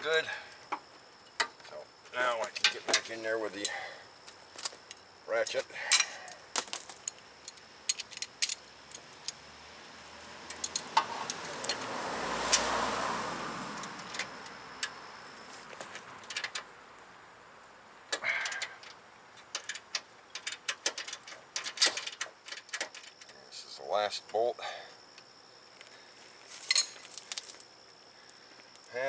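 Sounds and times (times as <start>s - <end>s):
car passing: 8.8s - 17.4s.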